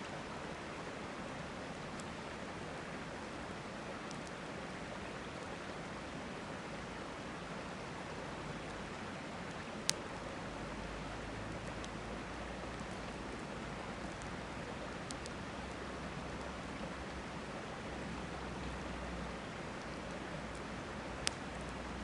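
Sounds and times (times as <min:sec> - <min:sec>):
river rushing: 0:00.0 - 0:22.0
campfire crackling and popping: 0:04.0 - 0:04.4, 0:09.4 - 0:10.2, 0:11.1 - 0:17.0, 0:18.1 - 0:22.0.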